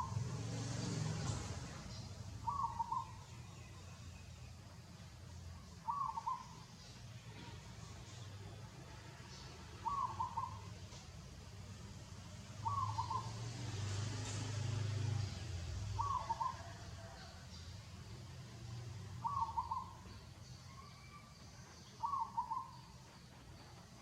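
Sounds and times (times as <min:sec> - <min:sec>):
bird call: 0:01.9 - 0:03.9, 0:05.8 - 0:07.4, 0:09.8 - 0:10.9, 0:12.6 - 0:13.5, 0:15.9 - 0:17.4, 0:19.2 - 0:23.7.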